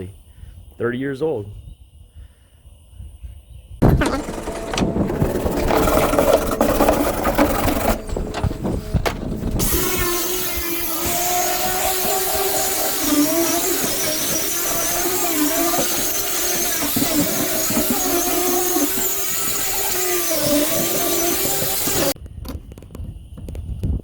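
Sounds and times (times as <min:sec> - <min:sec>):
power tool motor running: 0:03.8 - 0:22.2.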